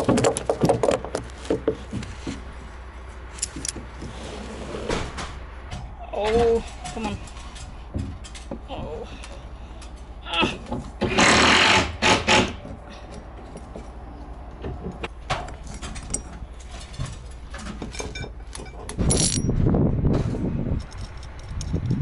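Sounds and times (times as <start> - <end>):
tools clicking and knocking: 0.0 - 2.1, 3.3 - 4.2, 5.7 - 11.3, 14.6 - 19.5.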